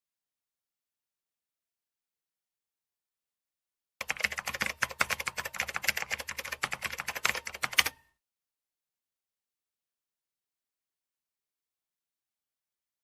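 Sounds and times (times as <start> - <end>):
keyboard key clicks: 4.0 - 8.1.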